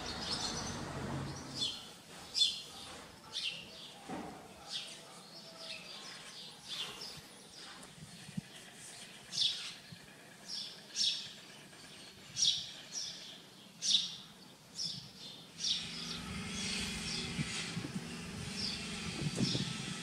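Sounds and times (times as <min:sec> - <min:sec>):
low engine hum: 0:00.0 - 0:01.8, 0:15.7 - 0:20.0
small birds chirping: 0:00.0 - 0:19.8.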